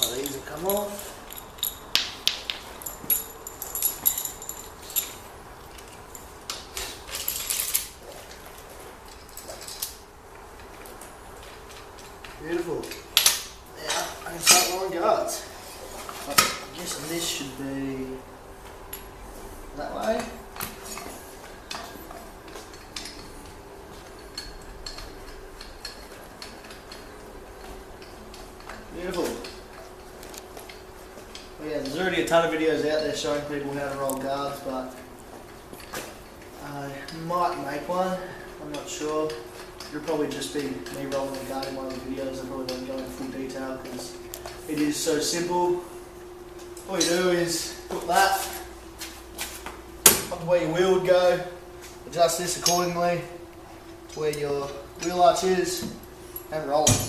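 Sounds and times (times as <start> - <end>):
metal parts clinking: 0.0 - 8.0
metallic clinks and taps: 0.0 - 8.4, 20.6 - 32.0.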